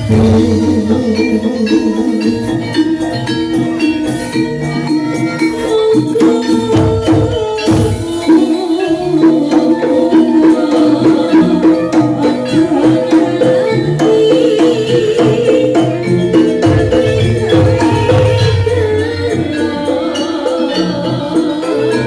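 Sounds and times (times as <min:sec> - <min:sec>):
struck bronze instruments ringing: 0:00.0 - 0:09.0
rapid drum strokes: 0:00.0 - 0:09.1
jingling percussion: 0:00.0 - 0:22.0.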